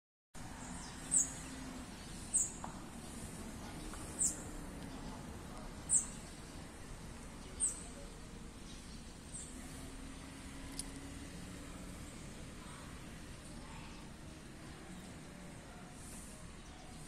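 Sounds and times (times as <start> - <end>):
low outdoor background hum: 0.4 - 17.0
small bird high chirp: 5.9 - 6.2, 7.4 - 8.0.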